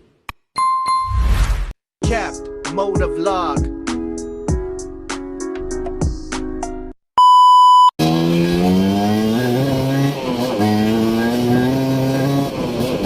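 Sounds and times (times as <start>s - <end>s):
electronic beep: 7.2s - 8.0s.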